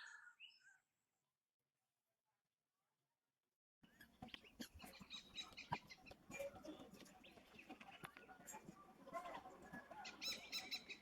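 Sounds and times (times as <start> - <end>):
high bird chirps and calls: 10.0 - 11.0.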